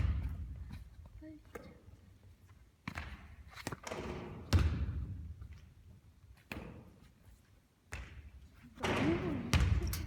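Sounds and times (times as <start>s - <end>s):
basketball thudding on court: 8.8s - 9.9s.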